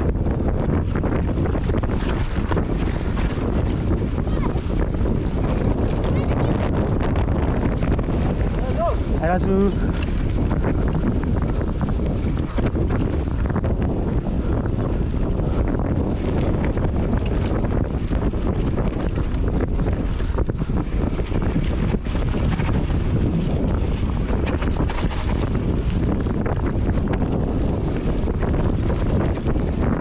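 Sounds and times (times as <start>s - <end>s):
wind rushing over microphone: 0.0s - 30.0s
bike knocks and rattles: 9.7s - 30.0s.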